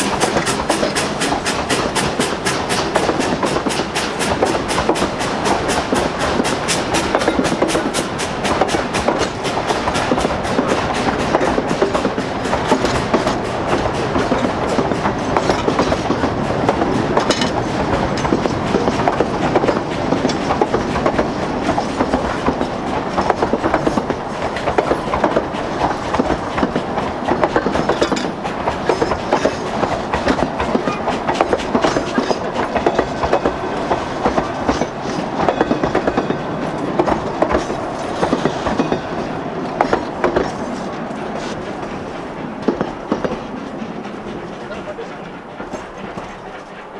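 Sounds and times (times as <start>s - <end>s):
train wheels clattering over rail joints: 0.0s - 46.9s.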